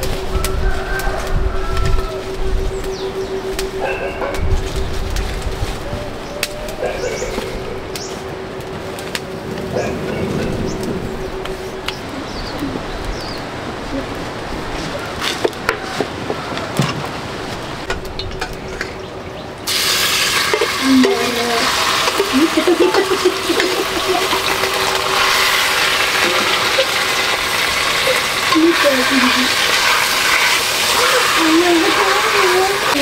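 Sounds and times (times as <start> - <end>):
food sizzling in a pan: 19.7 - 33.0.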